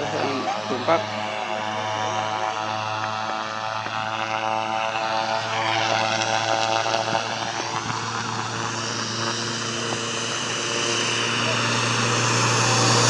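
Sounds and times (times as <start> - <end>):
airplane engines humming: 0.0 - 13.0
high engine whine: 0.0 - 13.0.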